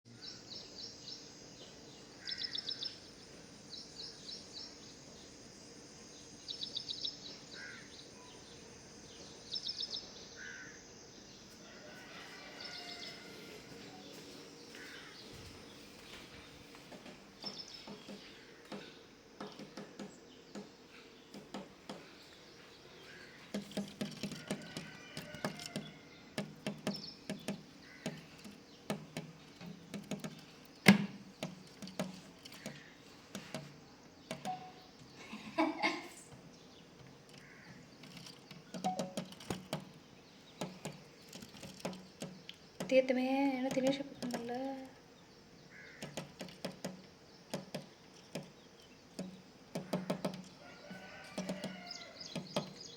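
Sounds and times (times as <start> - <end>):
small bird chirping: 0.1 - 35.7
quick taps or knocks: 23.5 - 34.7, 38.7 - 40.0, 46.0 - 50.5, 51.4 - 52.8.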